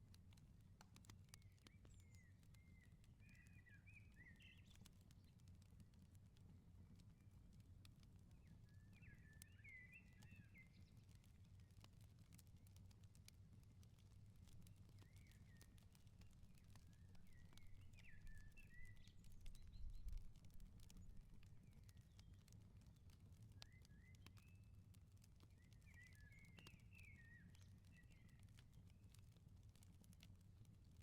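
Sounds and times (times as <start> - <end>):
wood fire crackling: 0.0 - 3.3, 10.7 - 26.7, 27.4 - 31.0.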